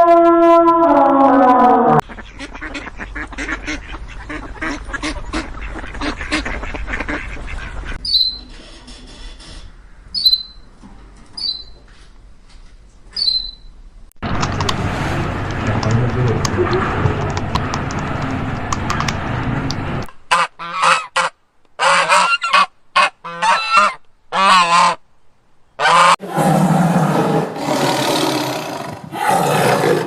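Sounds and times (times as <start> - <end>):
waterfowl quacking and honking: 2.0 - 8.4, 20.3 - 25.0, 25.8 - 26.2
short high-pitched calls: 11.4 - 11.8, 13.2 - 13.7.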